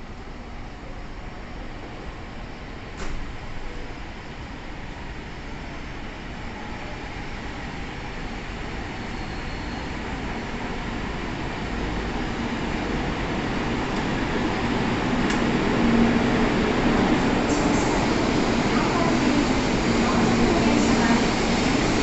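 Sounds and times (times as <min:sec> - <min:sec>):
train rushing noise: 0:07.5 - 0:22.0.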